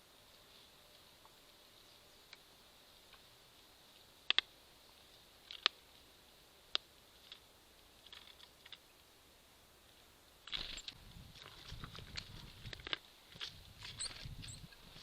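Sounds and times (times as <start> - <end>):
beaks pecking at seeds: 4.0 - 5.8, 10.5 - 15.0.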